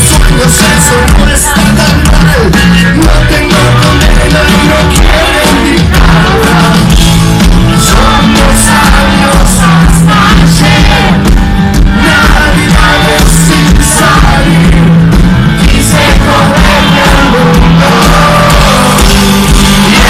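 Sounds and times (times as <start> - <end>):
live rock band playing: 0.0 - 20.0
singer's vocals and shouts: 0.0 - 20.0.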